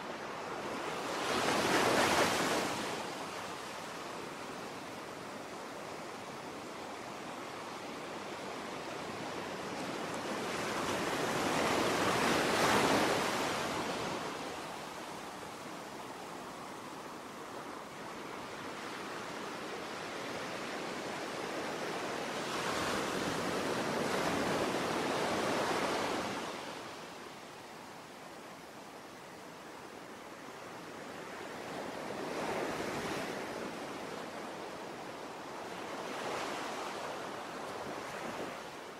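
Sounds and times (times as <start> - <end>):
ocean waves rolling in: 0.0 - 38.9.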